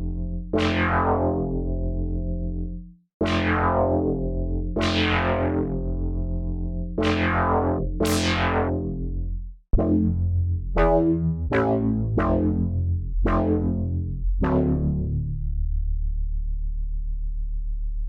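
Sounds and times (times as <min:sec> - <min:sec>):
steady synth bass: 0:00.0 - 0:18.0
synthesizer chord stabs: 0:09.8 - 0:15.2.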